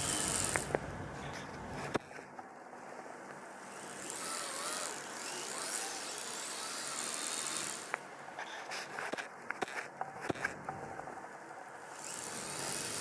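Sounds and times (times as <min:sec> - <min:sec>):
metal tracks hissing: 0:00.0 - 0:02.0
electric motors whining: 0:00.0 - 0:08.4, 0:10.7 - 0:13.0.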